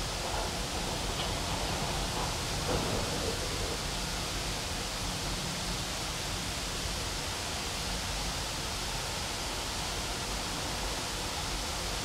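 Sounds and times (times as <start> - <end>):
freight train wheels rolling on rails: 0.0 - 5.6.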